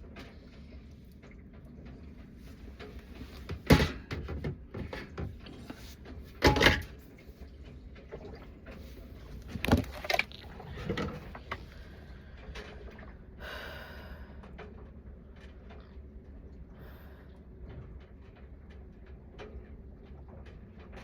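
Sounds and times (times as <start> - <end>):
sharp knocks and clatters: 2.7 - 7.3.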